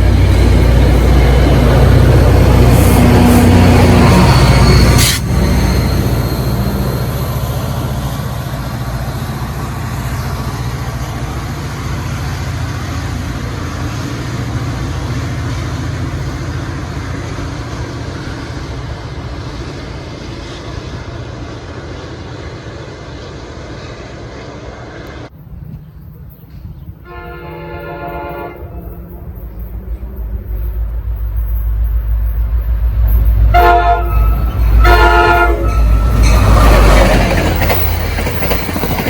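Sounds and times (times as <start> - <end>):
train rumbling and clattering on rails: 0.0 - 39.0.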